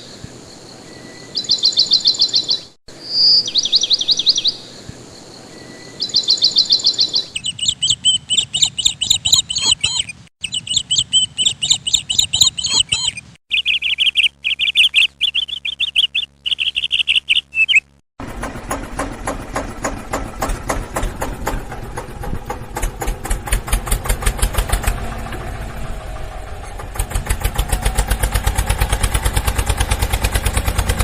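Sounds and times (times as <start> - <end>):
birds chirping in trills: 0.0 - 18.0.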